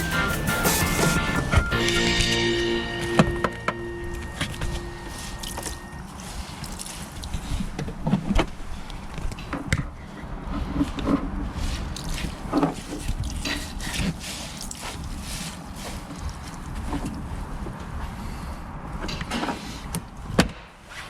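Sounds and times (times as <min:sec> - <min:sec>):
held music note: 0:00.0 - 0:06.0.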